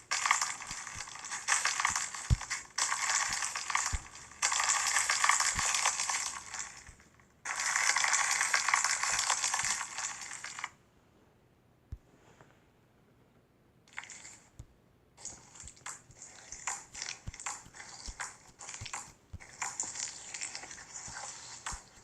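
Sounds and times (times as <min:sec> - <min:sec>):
slime crackling by hand: 0:00.0 - 0:10.7, 0:15.2 - 0:22.0.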